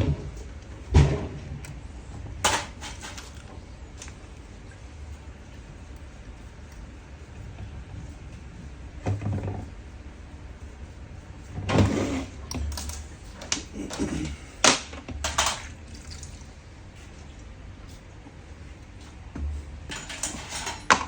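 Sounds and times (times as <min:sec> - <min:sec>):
low steady hum: 0:00.0 - 0:21.0
tools and metal parts clattering: 0:02.4 - 0:03.4, 0:12.5 - 0:14.3, 0:15.2 - 0:15.7, 0:19.9 - 0:21.0.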